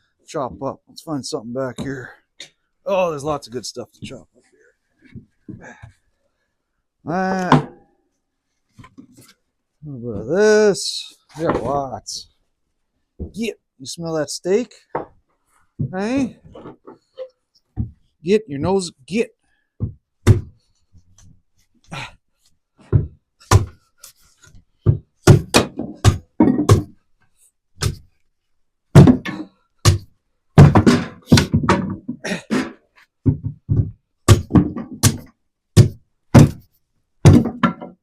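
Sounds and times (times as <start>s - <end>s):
wood chopping thunks: 7.4s - 7.8s, 22.9s - 23.8s, 24.9s - 27.0s, 27.8s - 28.0s, 29.0s - 36.6s, 37.2s - 37.9s.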